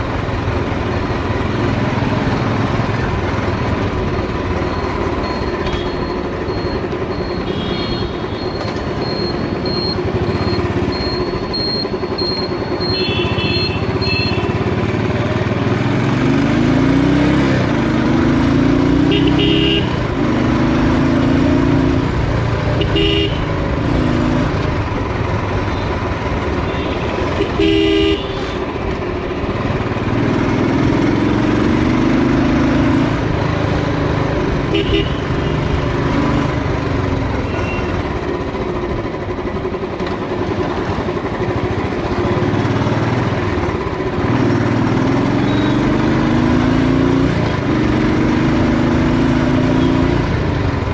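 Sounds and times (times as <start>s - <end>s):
motorcycle engine accelerating: 0.0s - 50.9s
horn toots: 19.0s - 20.1s, 22.8s - 23.5s, 26.7s - 28.6s, 34.6s - 35.6s.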